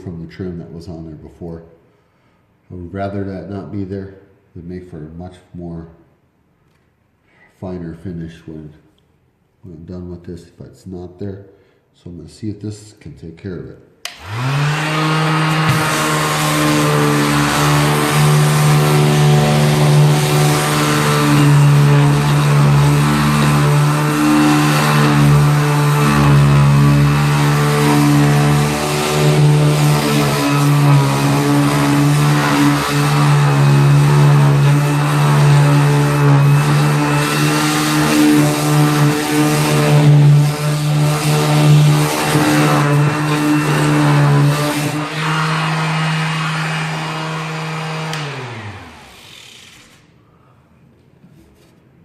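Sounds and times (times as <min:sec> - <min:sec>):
orbit sander sanding a wall: 0:14.1 - 0:50.2.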